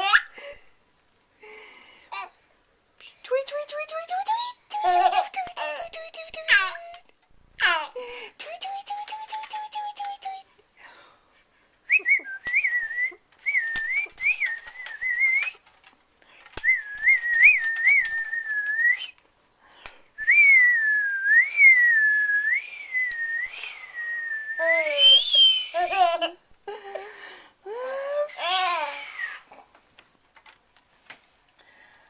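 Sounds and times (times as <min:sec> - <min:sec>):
person whistling: 0:11.9 - 0:15.6, 0:16.6 - 0:19.2, 0:20.2 - 0:25.9.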